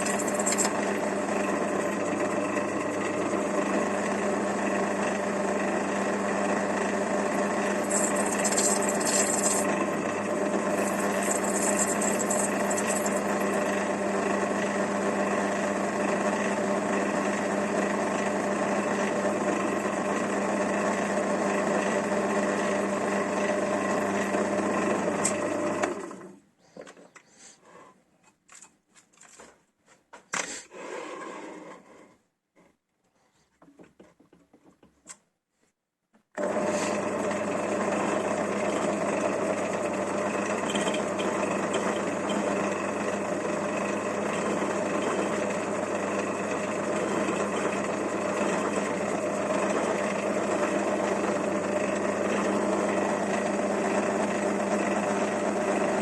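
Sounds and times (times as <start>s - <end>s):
power tool motor humming: 0.0s - 4.6s, 6.0s - 14.5s.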